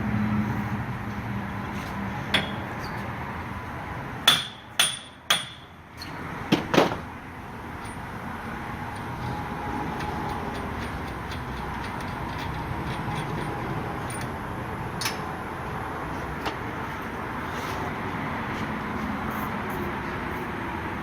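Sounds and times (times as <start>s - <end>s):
metal tool strikes with ringing: 4.3s - 5.7s.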